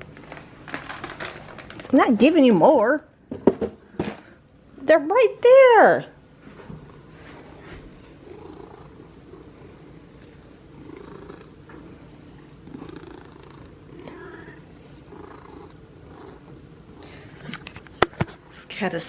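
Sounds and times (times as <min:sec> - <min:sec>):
cat purring: 0:06.7 - 0:17.9.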